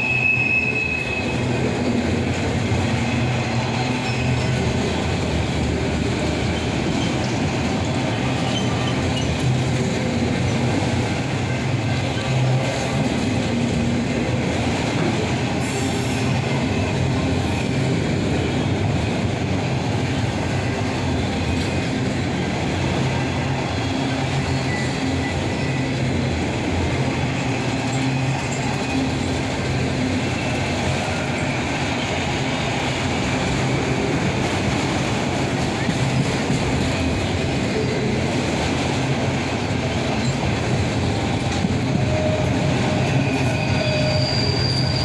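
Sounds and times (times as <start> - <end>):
freight train wheels on rails: 0.0 - 45.0.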